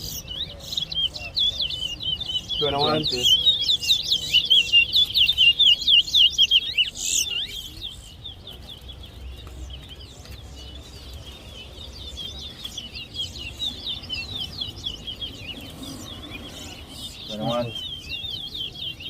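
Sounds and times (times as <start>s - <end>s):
finches chirping: 0.0s - 19.0s.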